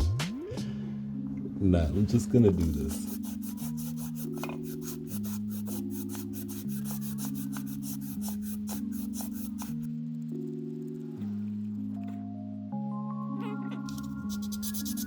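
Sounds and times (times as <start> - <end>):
music of sustained chords: 0.0 - 15.0
sandpaper rasping on metal: 2.6 - 9.9, 14.2 - 15.0.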